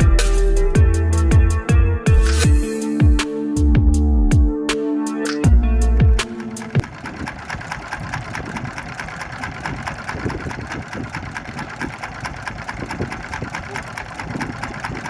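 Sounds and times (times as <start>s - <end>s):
music track: 0.0s - 6.9s
boat engine running: 5.4s - 15.0s.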